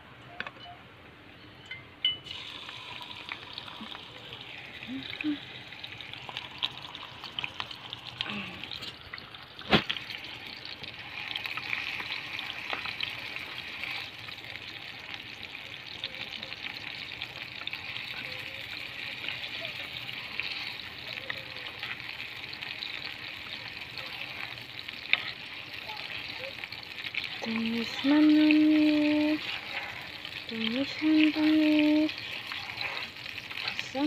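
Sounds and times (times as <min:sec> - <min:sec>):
vegetables sizzling in oil: 0:02.2 - 0:34.0
metal spoon stirring: 0:17.6 - 0:34.0.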